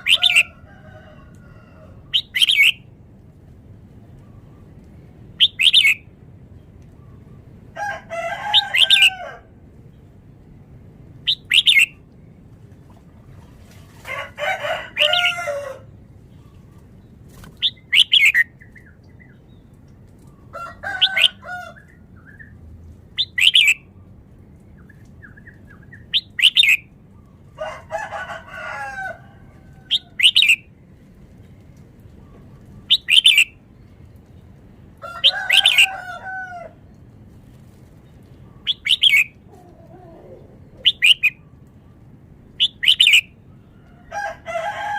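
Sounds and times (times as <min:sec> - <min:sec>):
lower longer bird calls: 0:05.4 - 0:06.1, 0:11.2 - 0:12.1, 0:29.4 - 0:30.7, 0:38.4 - 0:44.0.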